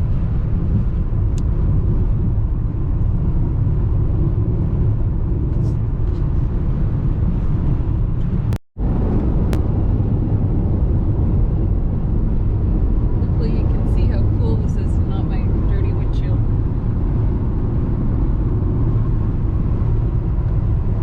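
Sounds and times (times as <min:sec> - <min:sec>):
car cabin road noise: 0:00.0 - 0:21.0.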